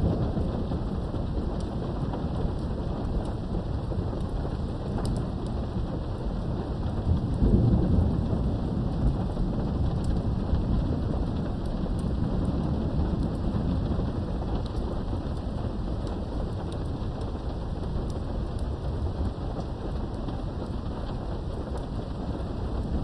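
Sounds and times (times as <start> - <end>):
steady rain: 0.0 - 23.0
thunder rumbling: 0.0 - 23.0.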